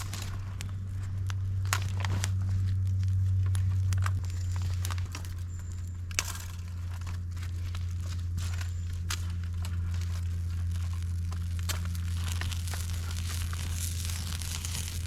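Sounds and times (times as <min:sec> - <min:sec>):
small fire crackling: 0:00.0 - 0:15.0
steady low hum: 0:00.0 - 0:15.0
sharp pops from fire: 0:08.2 - 0:15.0.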